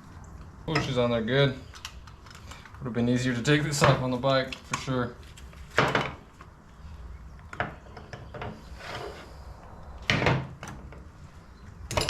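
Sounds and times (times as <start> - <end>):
short rubbing scrape: 8.6 - 9.6.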